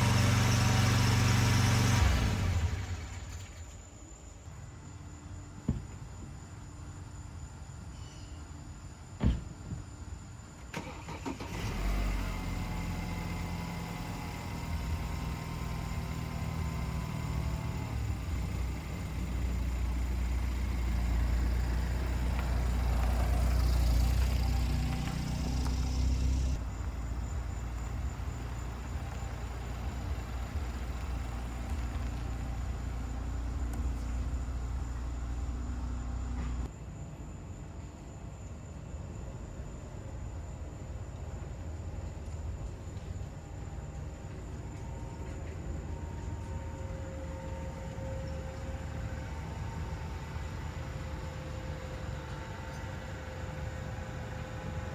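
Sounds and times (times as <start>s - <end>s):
mower engine cranking and running: 10.7s - 35.2s.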